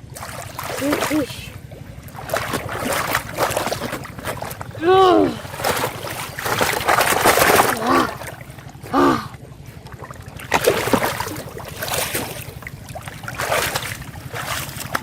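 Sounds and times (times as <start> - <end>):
water splashing and sloshing: 0.0 - 15.0
short voice-like calls: 7.7 - 8.2, 8.9 - 9.3.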